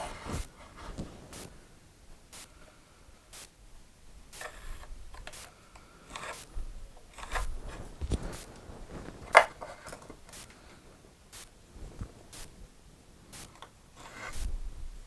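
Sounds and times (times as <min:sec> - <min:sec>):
sharp click: 0:05.2 - 0:06.5
tools scraping on wood: 0:06.1 - 0:06.5, 0:13.4 - 0:14.5.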